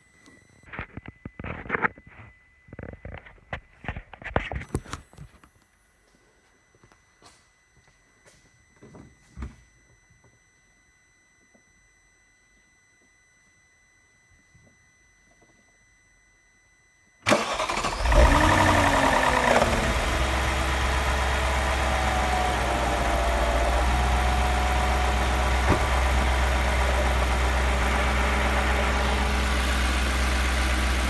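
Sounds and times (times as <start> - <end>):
car engine starting and revving: 17.3 - 31.0.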